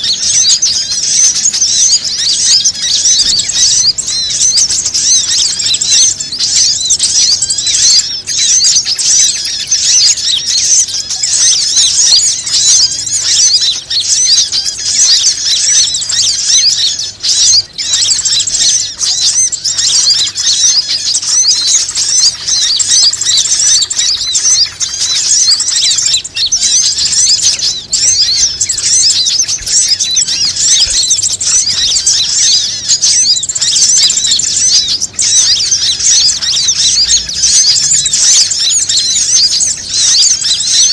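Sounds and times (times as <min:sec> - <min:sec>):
small birds chirping chorus: 0:00.0 - 0:40.9.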